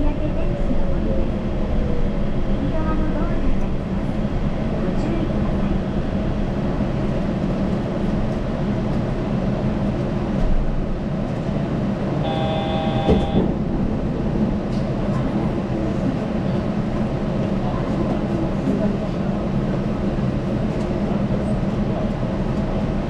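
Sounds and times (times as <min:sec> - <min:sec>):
train running low rumble: 0:00.0 - 0:23.0
short electronic tone: 0:12.2 - 0:13.5.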